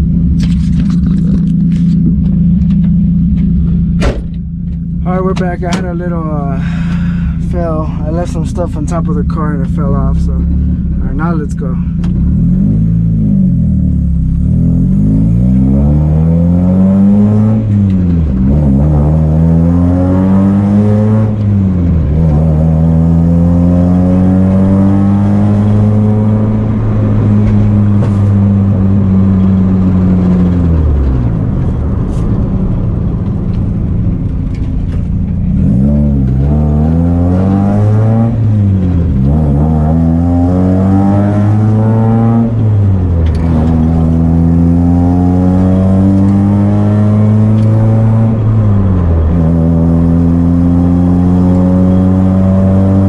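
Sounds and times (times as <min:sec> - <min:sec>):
car engine revving through gears: 0:00.0 - 0:53.0.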